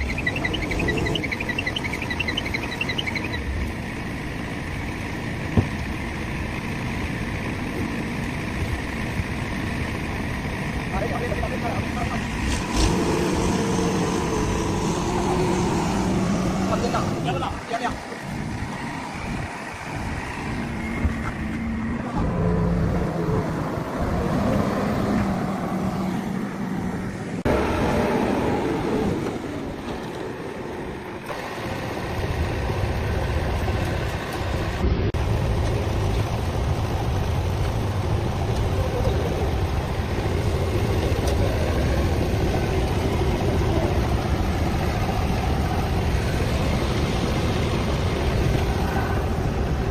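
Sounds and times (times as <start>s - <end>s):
diesel engine rumbling: 0.0s - 49.9s.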